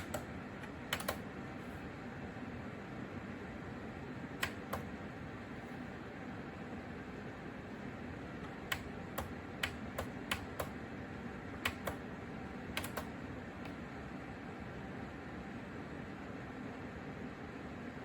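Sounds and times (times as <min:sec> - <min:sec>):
sharp clicks: 0:00.0 - 0:01.2, 0:04.4 - 0:04.9, 0:08.4 - 0:10.8, 0:11.6 - 0:12.0, 0:12.8 - 0:13.8
fan heater humming: 0:00.0 - 0:18.0.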